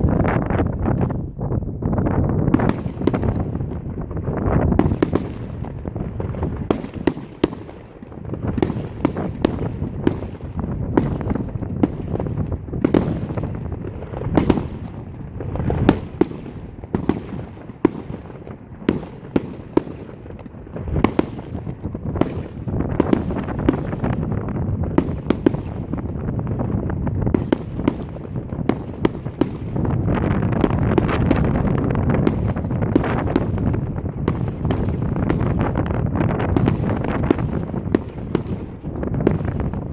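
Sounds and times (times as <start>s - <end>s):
fireworks bangs and crackles: 0.0s - 39.9s
deep rumble of booms: 20.7s - 39.9s.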